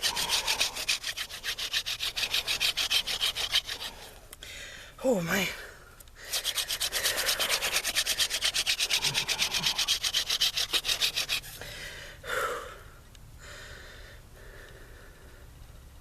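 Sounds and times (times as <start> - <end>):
wooden spindle rasping: 0.0 - 4.2, 6.3 - 11.6.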